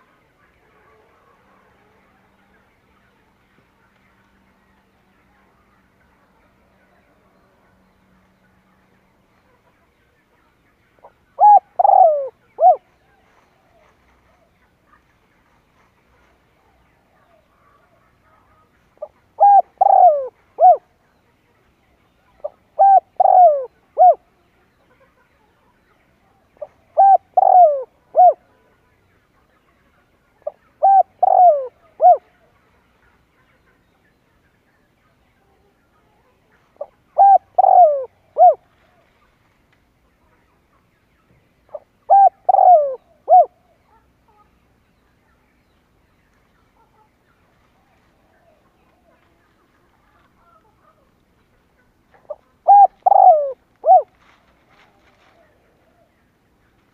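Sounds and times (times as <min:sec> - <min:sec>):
dove cooing: 0:11.0 - 0:14.6, 0:17.1 - 0:20.9, 0:22.4 - 0:24.4, 0:26.6 - 0:28.6, 0:30.4 - 0:32.5, 0:36.8 - 0:38.7, 0:41.7 - 0:43.8, 0:52.1 - 0:54.2.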